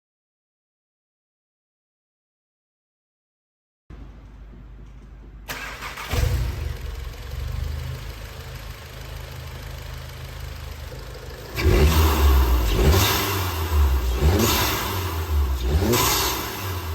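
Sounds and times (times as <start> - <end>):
car engine starting and idling: 5.4 - 16.9
car engine revving: 5.5 - 16.9.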